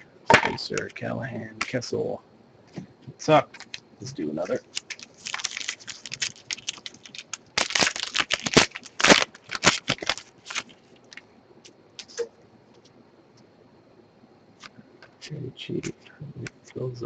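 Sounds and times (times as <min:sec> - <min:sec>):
cards being handled: 0:04.4 - 0:11.2
wrapper tearing and crinkling: 0:04.5 - 0:11.2.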